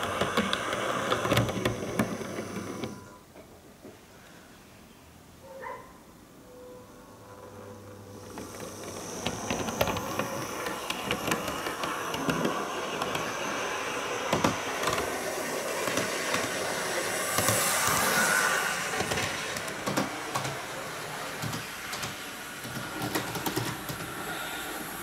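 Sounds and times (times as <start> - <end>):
model train running hiss: 0.0 - 3.0, 7.8 - 25.0
wheels clicking over track: 8.2 - 24.3.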